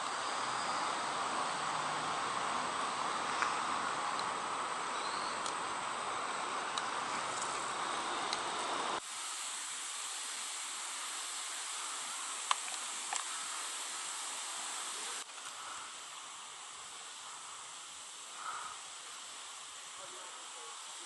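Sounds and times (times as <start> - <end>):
distant city traffic: 0.0 - 9.0
insects: 0.0 - 21.0.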